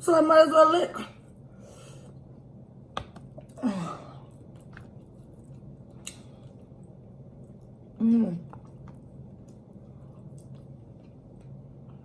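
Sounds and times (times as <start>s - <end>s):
wet mouth eating sounds: 7.4s - 11.9s.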